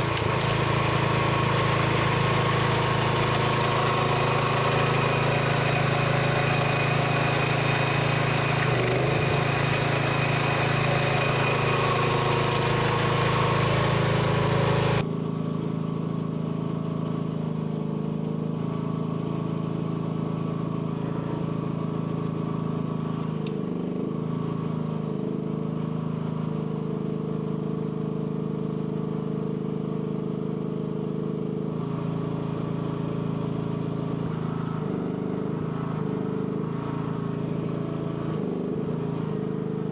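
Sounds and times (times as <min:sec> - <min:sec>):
small excavator engine running: 0:00.0 - 0:39.9.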